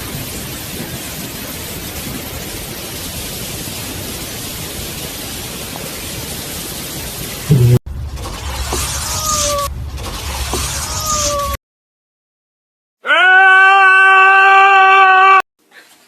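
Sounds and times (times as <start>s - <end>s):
steady hiss: 0.0s - 11.5s.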